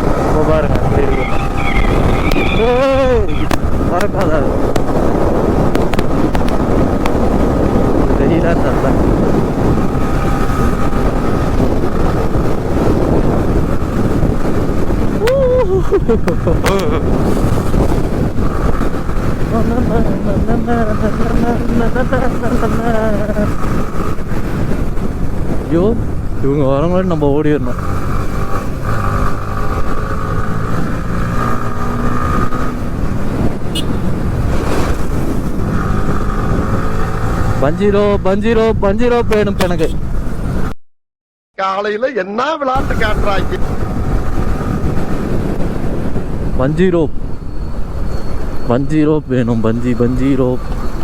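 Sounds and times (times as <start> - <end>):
motorcycle engine running: 0.0 - 15.2
motorcycle engine: 0.0 - 26.6, 27.5 - 38.2, 42.8 - 46.6
road noise: 0.0 - 40.8, 41.8 - 51.0
wind rushing over microphone: 0.0 - 40.8, 42.8 - 51.0.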